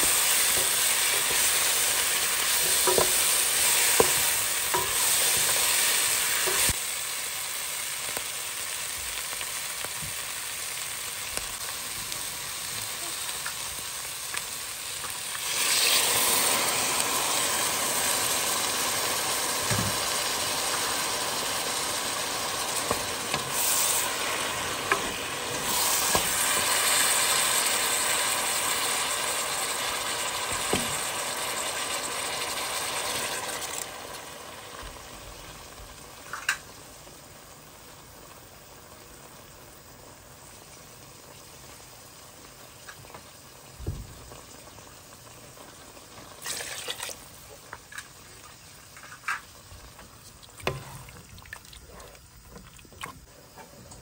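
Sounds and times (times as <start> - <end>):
food sizzling in a pot: 0.0 - 54.0
water pouring into pot: 15.4 - 34.4, 46.4 - 47.3, 50.3 - 51.9.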